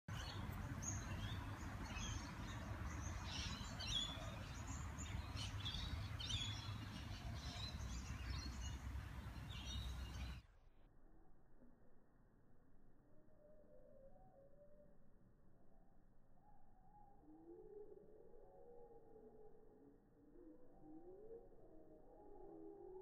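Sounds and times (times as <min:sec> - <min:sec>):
low outdoor rumble: 0:00.1 - 0:10.4
small birds chirping: 0:00.1 - 0:10.4.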